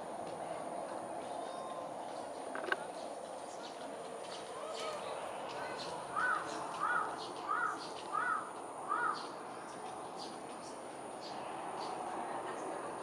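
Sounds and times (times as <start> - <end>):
bird calling: 5.7 - 9.3.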